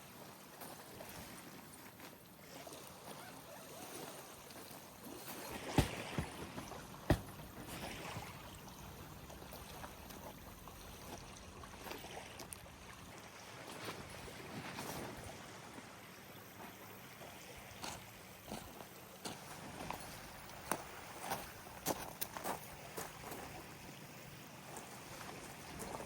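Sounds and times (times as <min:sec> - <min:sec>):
lake water lapping: 0:00.0 - 0:26.0
sharp knocks: 0:05.7 - 0:07.8.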